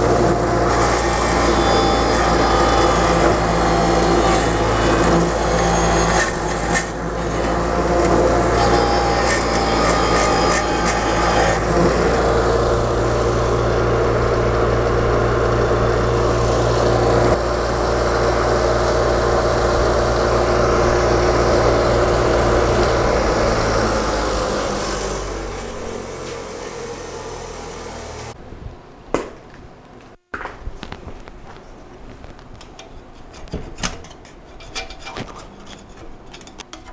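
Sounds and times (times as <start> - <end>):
motor drone: 0.0 - 28.4
clicking and scraping: 30.8 - 36.9.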